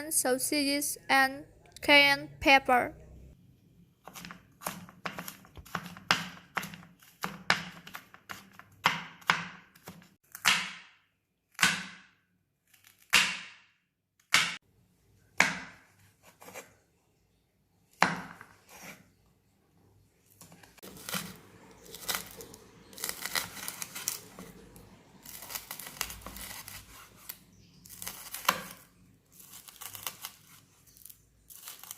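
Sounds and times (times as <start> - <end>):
knife chopping on cutting board: 4.0 - 11.0, 11.6 - 12.2, 13.0 - 14.6, 18.0 - 19.0.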